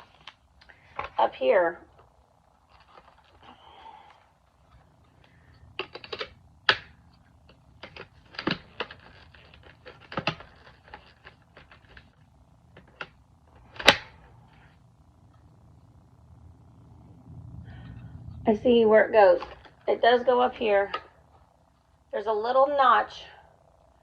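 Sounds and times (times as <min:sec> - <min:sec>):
plastic parts clicking: 0:05.8 - 0:06.9, 0:07.5 - 0:12.1
plastic parts knocking: 0:05.8 - 0:06.9, 0:07.5 - 0:12.1.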